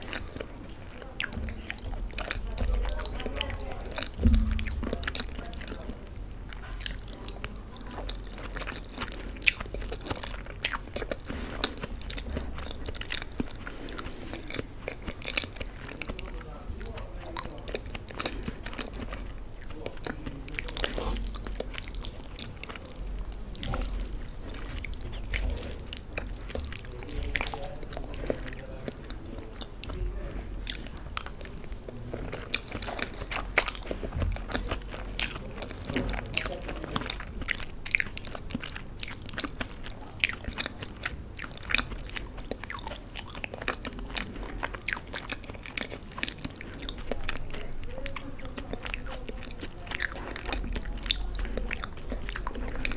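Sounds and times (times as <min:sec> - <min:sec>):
chewing and wet mouth sounds: 0:00.0 - 0:52.9.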